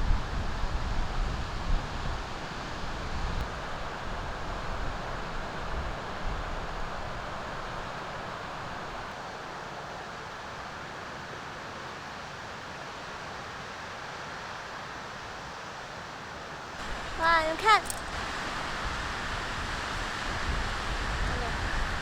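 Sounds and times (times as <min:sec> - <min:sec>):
wind gusts on microphone: 0:00.0 - 0:09.1, 0:16.8 - 0:22.0
wind: 0:00.0 - 0:22.0.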